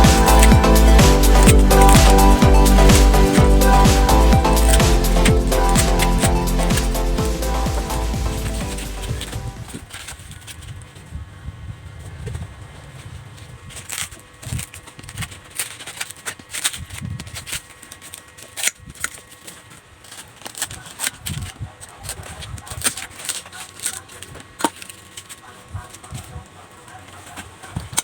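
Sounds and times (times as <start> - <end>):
hands clicking and scraping coconut: 0.0 - 10.3, 13.7 - 26.3.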